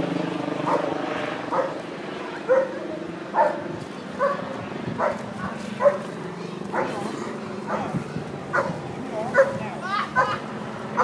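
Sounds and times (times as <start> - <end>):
dog barking: 0.7 - 0.9, 1.5 - 1.8, 2.5 - 3.6, 4.2 - 4.4, 5.0 - 5.2, 5.8 - 6.0, 6.7 - 7.0, 7.7 - 7.9, 8.5 - 9.6, 10.2 - 10.4.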